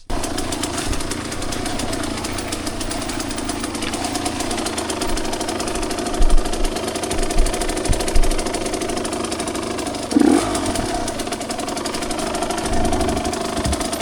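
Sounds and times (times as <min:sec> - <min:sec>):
dirt bike engine running: 0:00.0 - 0:14.0
low thumps: 0:03.9 - 0:09.0.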